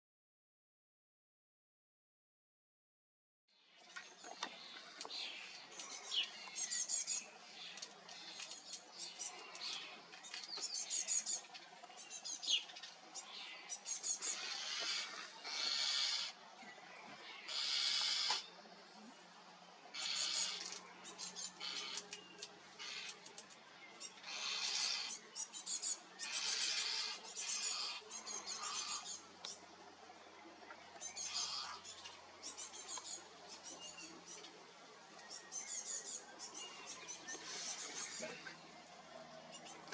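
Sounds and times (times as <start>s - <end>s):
songbirds chirping and trilling: 3.5s - 39.9s.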